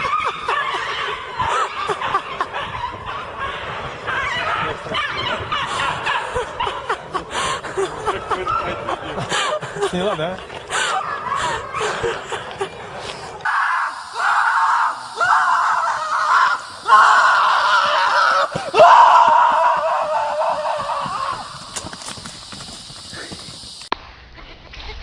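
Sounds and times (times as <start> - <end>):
person screaming: 13.4 - 21.6.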